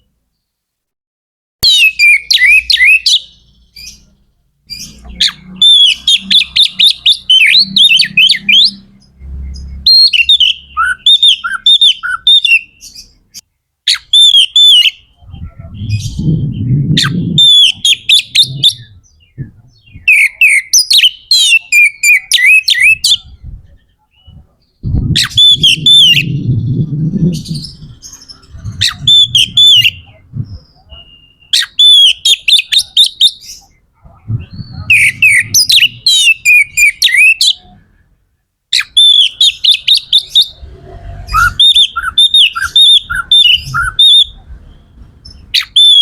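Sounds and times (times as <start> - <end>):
bird singing whistled notes: 1.6 - 4.1, 4.7 - 13.2, 13.9 - 23.3, 24.2 - 33.8, 34.4 - 37.7, 38.8 - 46.0
low rumble: 15.1 - 20.1, 24.4 - 31.0, 40.5 - 41.7.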